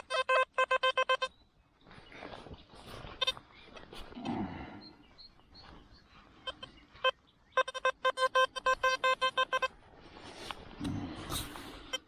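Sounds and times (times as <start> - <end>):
metal detector beeps: 6.4 - 9.8.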